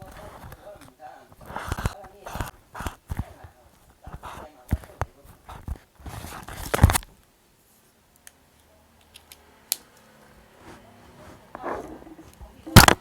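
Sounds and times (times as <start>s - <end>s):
paper rustling and scraping: 1.4s - 3.3s, 4.0s - 7.0s.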